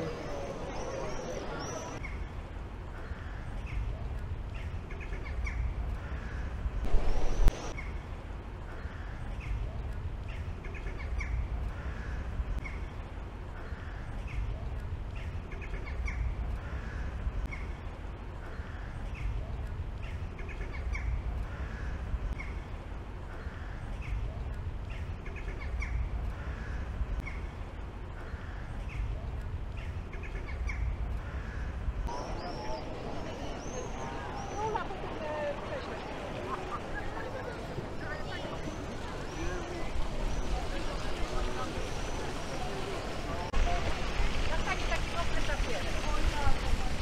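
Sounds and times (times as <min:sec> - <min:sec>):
steady low rumble: 0:05.4 - 0:10.4.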